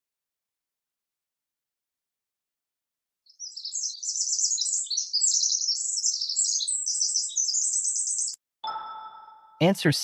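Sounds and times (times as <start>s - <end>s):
songbird twittering: 3.3s - 8.4s.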